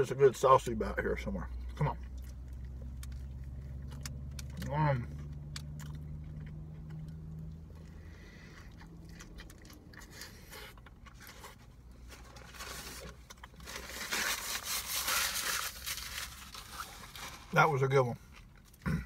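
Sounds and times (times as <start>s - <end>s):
person chewing food: 1.5s - 14.0s.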